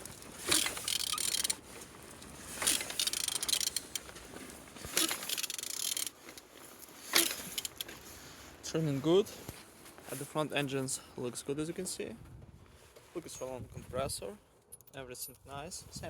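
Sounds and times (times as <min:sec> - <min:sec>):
engine turned over by hand: 0:00.0 - 0:07.9
sharp mechanical click: 0:00.5 - 0:01.6, 0:02.6 - 0:04.0.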